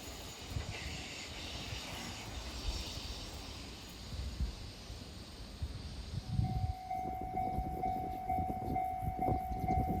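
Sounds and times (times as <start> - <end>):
train rumble and hiss: 0.0 - 10.0.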